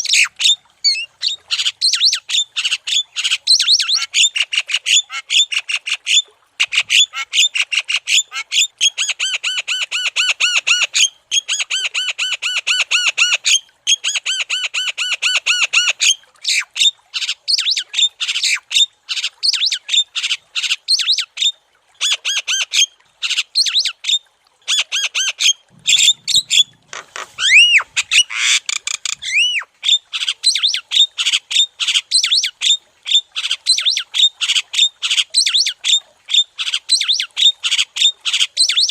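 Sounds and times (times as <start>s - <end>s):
bird chattering song: 25.8s - 26.7s, 27.4s - 29.7s
rising bird whistles: 27.4s - 29.7s.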